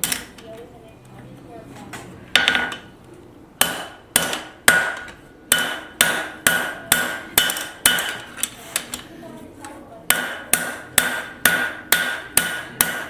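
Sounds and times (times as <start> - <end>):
hammer striking steel on anvil: 3.6 - 8.3, 10.1 - 13.0.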